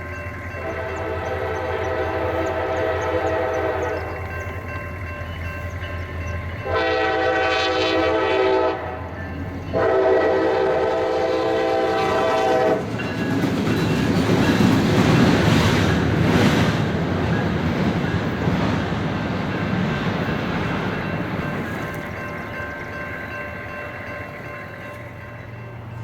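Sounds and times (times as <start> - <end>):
train rumbling past: 0.0 - 26.0
locomotive air horn blasts: 0.6 - 4.1, 6.6 - 12.8
wheel clatter on rails: 12.0 - 26.0.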